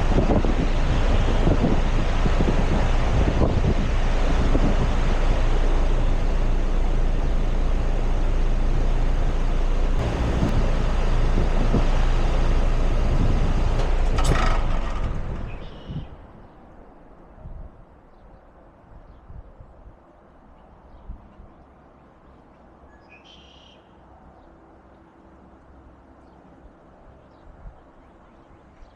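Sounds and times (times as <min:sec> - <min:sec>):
heat pump unit humming and rushing: 0:00.0 - 0:16.4.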